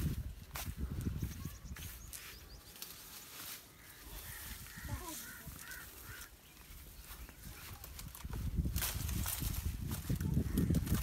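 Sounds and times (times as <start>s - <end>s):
dry palm fronds rustling: 0.0s - 11.0s
bird chirps: 1.2s - 3.1s.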